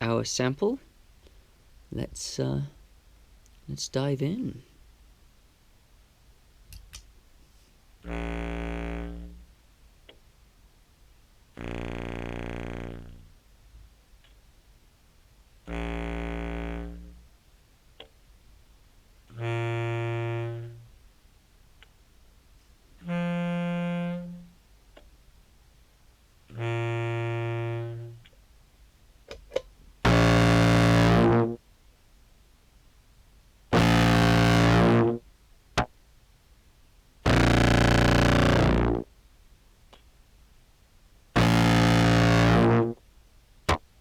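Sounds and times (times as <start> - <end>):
fuzz-distorted clarinet notes: 8.0 - 9.5, 11.6 - 13.3, 15.7 - 17.2, 19.3 - 20.9, 23.0 - 24.6, 26.5 - 28.2, 30.0 - 31.6, 33.7 - 35.2, 37.3 - 39.1, 41.4 - 43.0
low clarinet notes: 8.0 - 9.5, 11.6 - 13.3, 15.7 - 17.2, 19.3 - 20.9, 23.0 - 24.6, 26.5 - 28.3, 30.0 - 31.6, 33.7 - 35.2, 37.3 - 39.1, 41.4 - 43.0.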